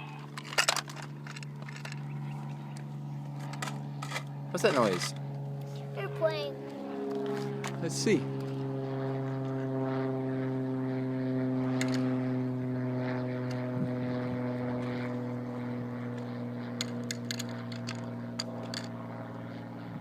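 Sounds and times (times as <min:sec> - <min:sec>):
propeller airplane droning: 0:00.0 - 0:20.0.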